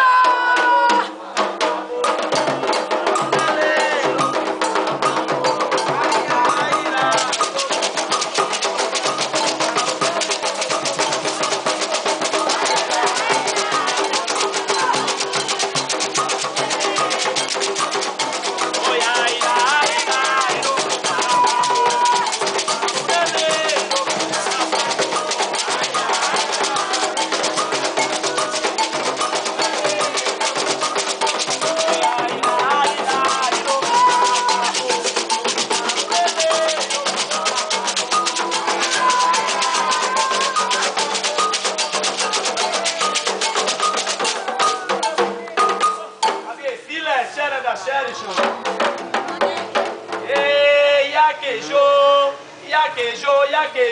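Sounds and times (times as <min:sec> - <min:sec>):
voices singing a chant: 0:00.0 - 0:46.2, 0:48.1 - 0:53.9
hand drums: 0:00.0 - 0:46.5, 0:48.1 - 0:50.9
rattles: 0:04.2 - 0:44.7.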